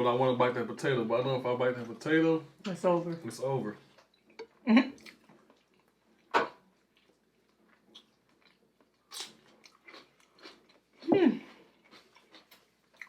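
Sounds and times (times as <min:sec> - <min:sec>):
person chewing food: 0:03.8 - 0:13.0.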